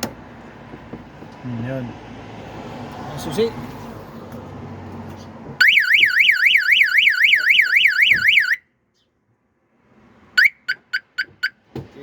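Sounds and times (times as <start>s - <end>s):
car alarm chirps: 5.6s - 8.7s, 10.4s - 11.7s
car alarm siren warbling: 5.6s - 8.7s, 10.4s - 11.6s.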